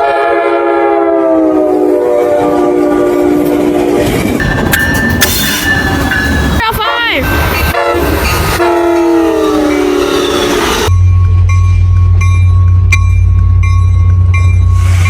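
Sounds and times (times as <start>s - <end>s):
locomotive air horn: 0.0s - 4.2s, 6.7s - 10.9s
train rail and wheel noise: 0.0s - 15.0s.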